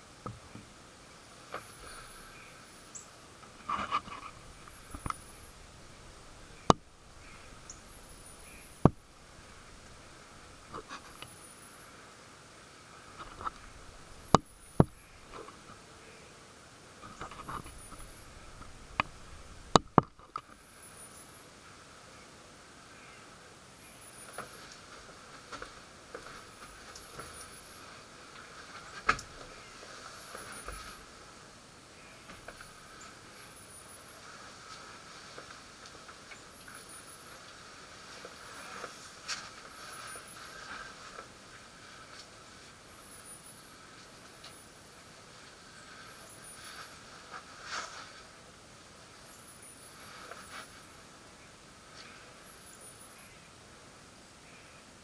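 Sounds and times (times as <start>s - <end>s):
steady background hum: 0.0s - 55.0s
faint clicks: 1.4s - 11.4s, 17.0s - 20.6s.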